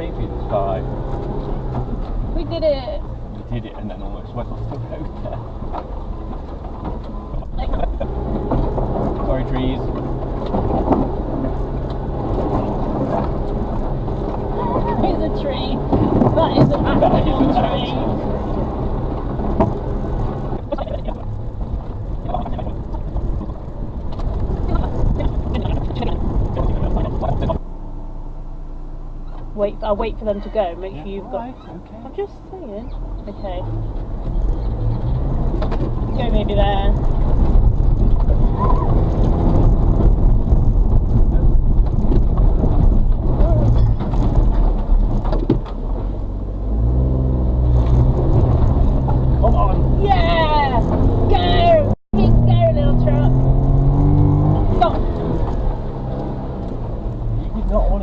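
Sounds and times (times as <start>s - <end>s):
truck engine under load: 0.0s - 28.3s, 29.0s - 58.0s
knocks and scrapes: 4.4s - 27.6s, 33.7s - 46.2s.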